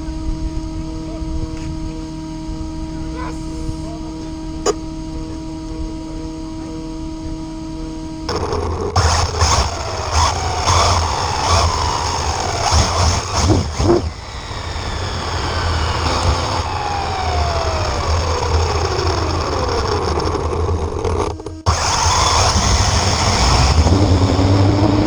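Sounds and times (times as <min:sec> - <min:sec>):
motor low rumble: 0:00.0 - 0:25.0
whines falling in pitch: 0:08.3 - 0:25.0.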